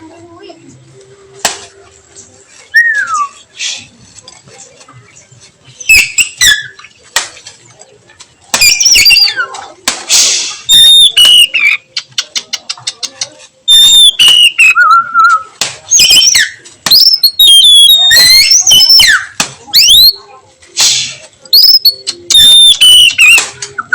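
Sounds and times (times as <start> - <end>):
magpie-robin whistling song: 2.7 - 3.8, 5.8 - 6.9, 8.6 - 9.5, 10.6 - 12.0, 13.7 - 20.2, 21.5 - 23.9.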